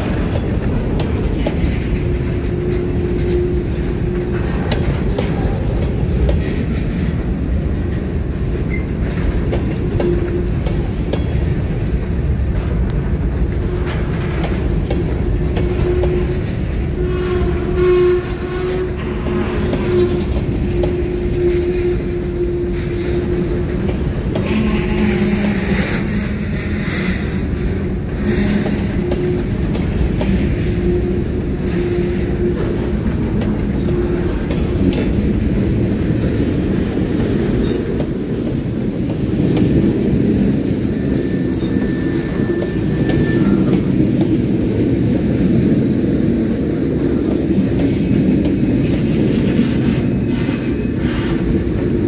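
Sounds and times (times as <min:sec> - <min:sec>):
freight train rumbling past: 0:00.0 - 0:52.0
wheels clattering on rail: 0:00.0 - 0:52.0
wheel squeals: 0:37.1 - 0:38.5, 0:41.0 - 0:43.9.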